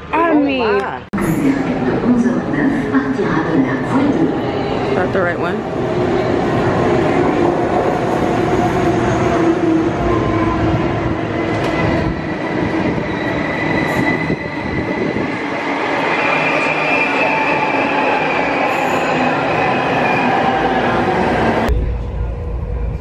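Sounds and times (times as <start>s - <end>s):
high wheel squeal: 12.2s - 15.2s.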